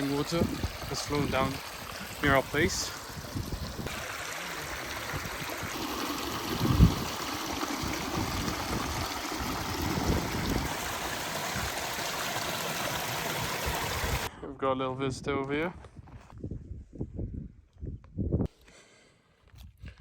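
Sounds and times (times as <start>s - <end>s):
mountain stream running: 0.0s - 14.3s.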